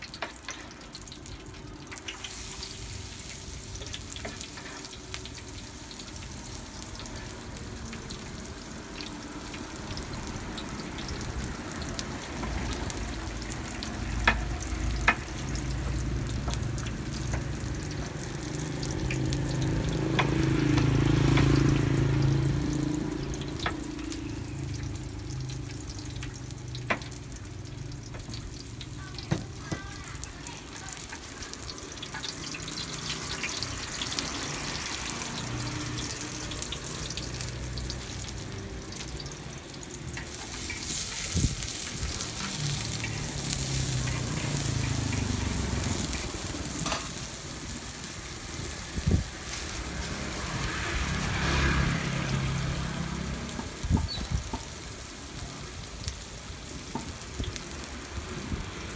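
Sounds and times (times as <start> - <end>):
food sizzling in a pan: 0.0 - 58.9.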